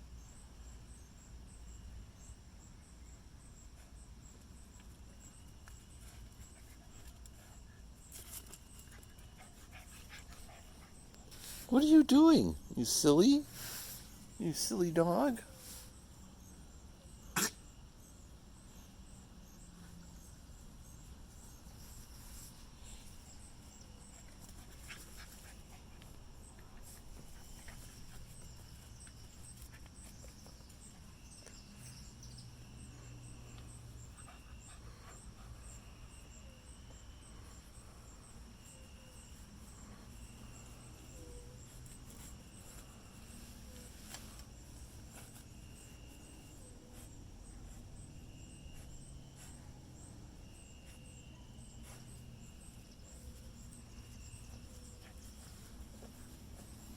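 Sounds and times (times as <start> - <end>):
crickets chirping: 0.0 - 56.9
puppy playing: 4.4 - 14.7, 21.0 - 49.8, 50.5 - 56.9.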